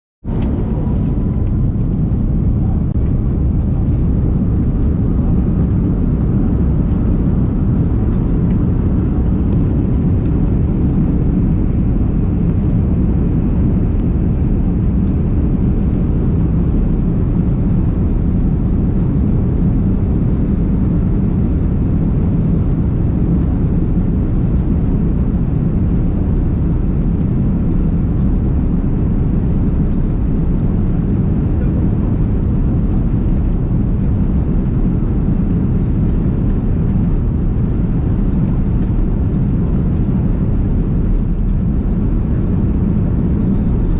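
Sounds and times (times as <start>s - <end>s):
jet airliner engine rumble: 0.2s - 43.9s.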